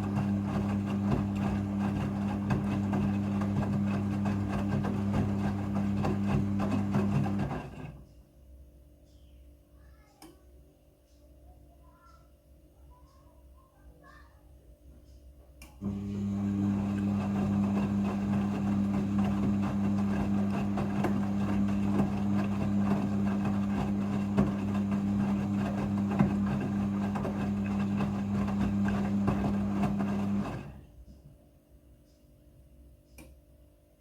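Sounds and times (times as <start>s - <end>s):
washing machine running: 0.0s - 8.0s, 15.8s - 30.9s.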